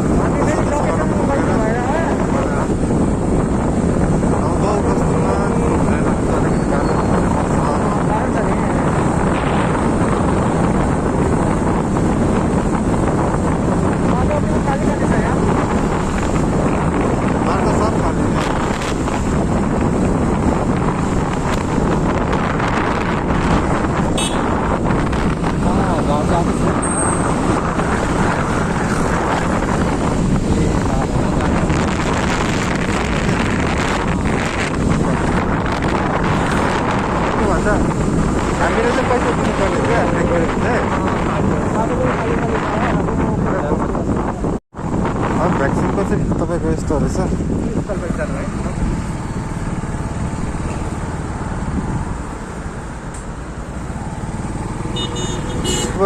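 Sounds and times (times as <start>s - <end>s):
motorcycle running: 0.0s - 56.0s
wind buffeting microphone: 0.0s - 56.0s.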